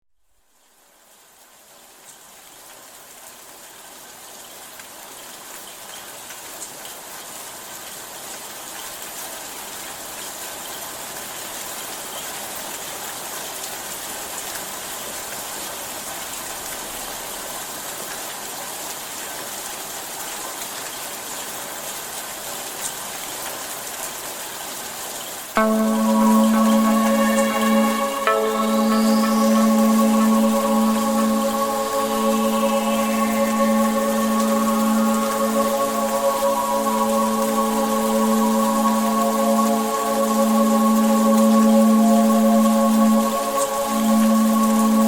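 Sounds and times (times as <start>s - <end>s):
steady rain falling: 0.5s - 45.0s.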